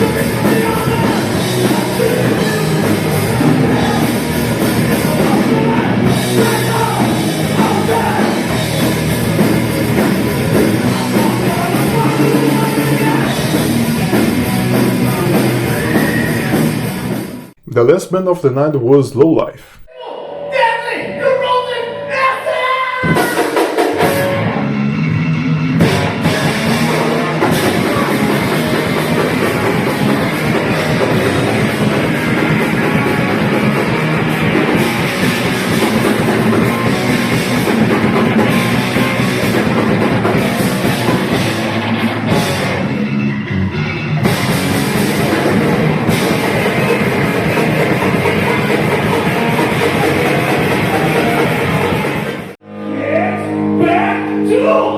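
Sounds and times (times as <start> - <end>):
vocals: 0.0 - 8.6, 11.0 - 13.4, 17.6 - 23.6, 52.9 - 54.9
drum kit: 0.0 - 16.7, 44.2 - 52.3
bass guitar: 0.0 - 18.3, 24.0 - 54.9
distorted guitars: 0.0 - 18.5, 24.0 - 54.5.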